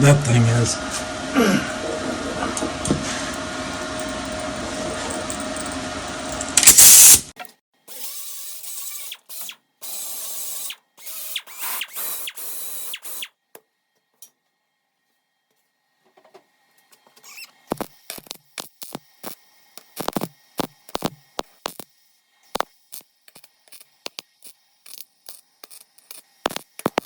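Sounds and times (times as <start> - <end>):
machine whir: 0.0 - 7.3
welder crackling: 2.2 - 13.3, 17.2 - 27.0
short loud hiss: 6.7 - 7.3.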